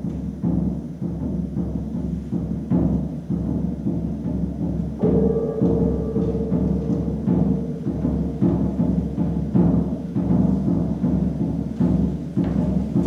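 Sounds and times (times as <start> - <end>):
low-pitched drums: 0.1 - 13.0.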